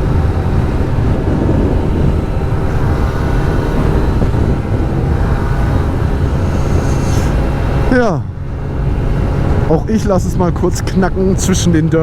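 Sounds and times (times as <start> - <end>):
motorcycle engines droning: 0.0 - 12.0
wind rumble on microphone: 0.0 - 12.0
rider talking: 6.6 - 8.3, 9.6 - 12.0.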